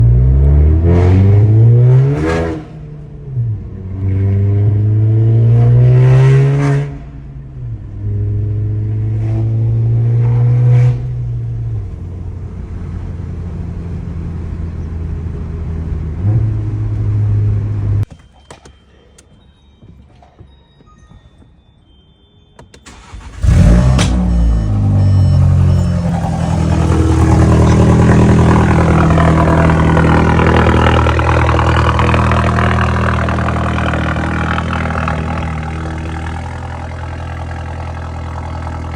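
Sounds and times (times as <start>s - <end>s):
loud car engine revving and idling: 0.0s - 3.0s, 23.1s - 38.9s.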